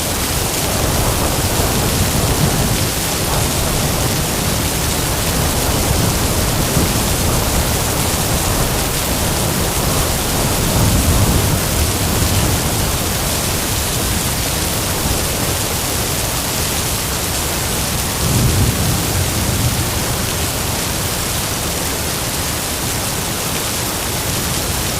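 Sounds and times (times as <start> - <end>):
heavy rain: 0.0 - 24.9
wind: 0.0 - 24.9
low rumbles of thunder: 0.4 - 16.2, 17.9 - 21.7.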